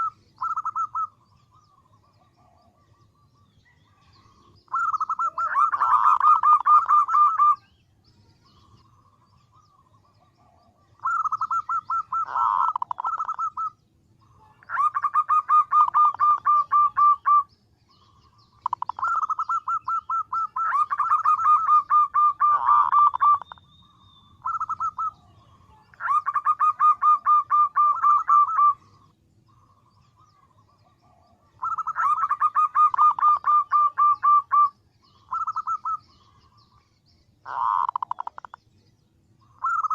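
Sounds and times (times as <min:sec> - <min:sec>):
dove calling in pulsed notes: 0:00.0 - 0:39.9.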